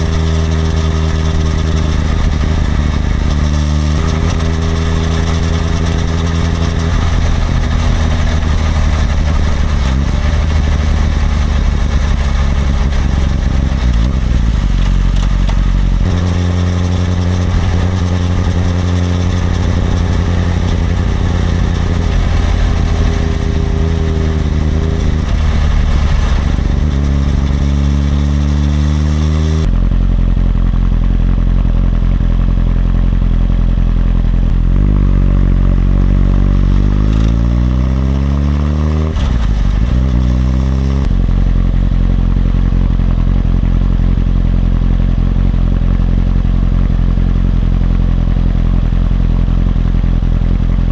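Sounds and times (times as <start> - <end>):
wind noise: 0.0 - 29.7
motorcycle engine running: 0.0 - 50.9.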